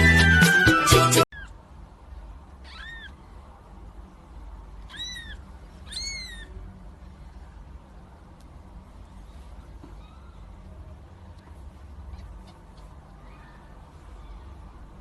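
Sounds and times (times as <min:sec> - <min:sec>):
cat meowing: 0:01.3 - 0:01.6, 0:02.6 - 0:03.3, 0:04.8 - 0:06.6.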